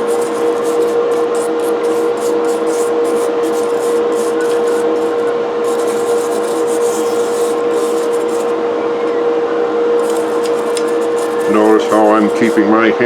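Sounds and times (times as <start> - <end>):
metal part scrubbing on brush: 0.0 - 8.6, 10.0 - 12.7
powered wire brush humming: 0.0 - 8.6, 10.0 - 12.7.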